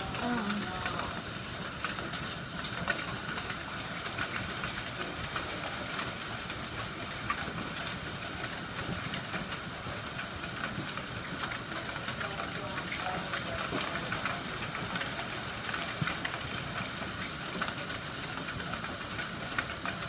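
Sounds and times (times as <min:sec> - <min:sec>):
hailstones striking: 0:00.0 - 0:20.0
heavy rain: 0:00.0 - 0:20.0.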